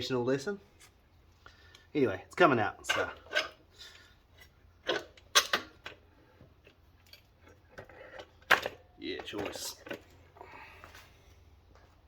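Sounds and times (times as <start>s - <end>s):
metal tools clinking and knocking: 2.8s - 6.0s, 6.6s - 10.3s.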